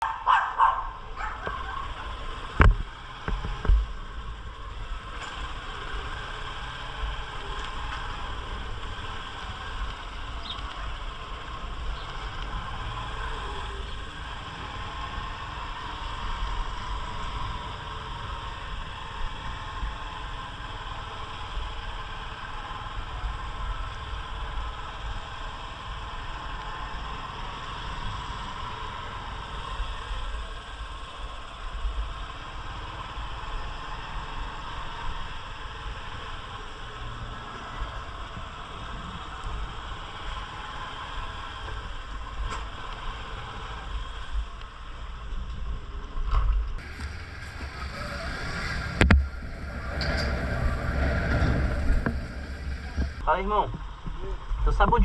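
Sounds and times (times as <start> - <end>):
dog barking: 0.0 - 2.0
motorcycle engine running: 0.0 - 55.0
wind rumble on microphone: 0.0 - 55.0.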